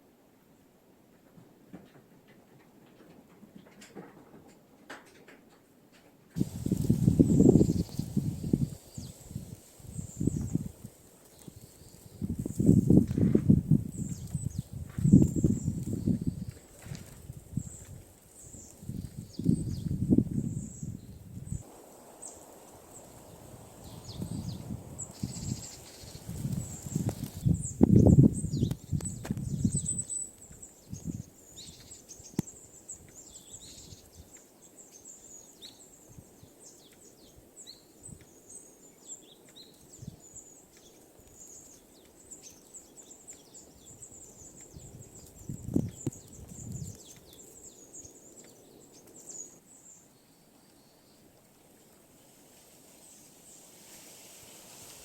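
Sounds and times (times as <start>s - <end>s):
small birds chirping: 6.4s - 53.7s.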